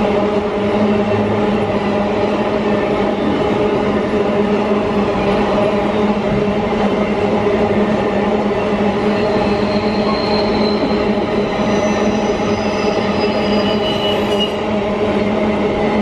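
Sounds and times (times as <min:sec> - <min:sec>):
freight train drone: 0:00.0 - 0:16.0
train wheel squeal: 0:08.9 - 0:14.7.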